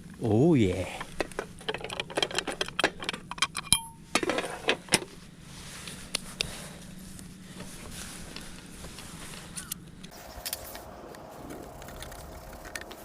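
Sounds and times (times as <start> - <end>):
ringing clink: 3.6 - 4.0.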